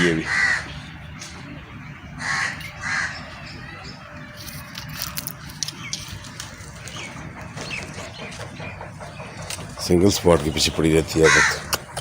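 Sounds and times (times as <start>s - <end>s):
crow cawing: 0.0s - 0.8s, 2.2s - 3.2s, 11.2s - 11.8s.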